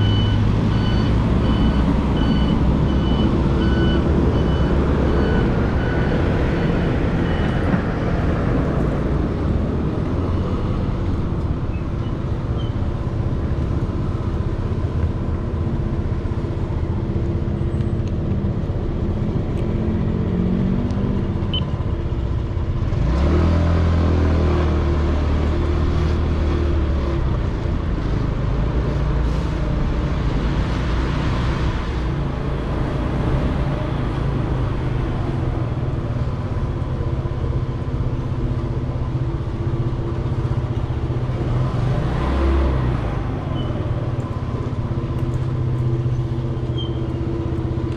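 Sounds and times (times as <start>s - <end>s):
muffled wind and road noise: 0.0s - 47.9s
engine revving with rising pitch: 22.9s - 26.3s.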